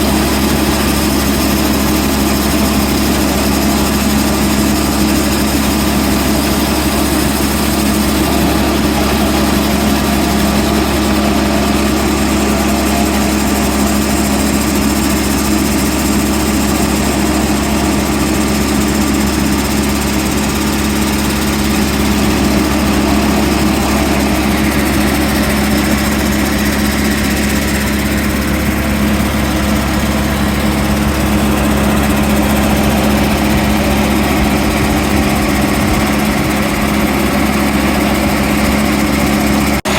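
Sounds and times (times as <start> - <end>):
sawmill engine humming: 0.0 - 39.9.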